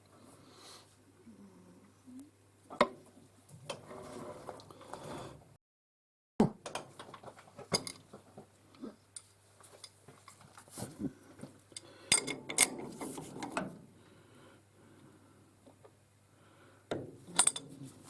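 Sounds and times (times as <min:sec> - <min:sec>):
faint steady hum: 0:00.0 - 0:05.6, 0:06.6 - 0:18.0
metal tools clinking: 0:17.4 - 0:17.8.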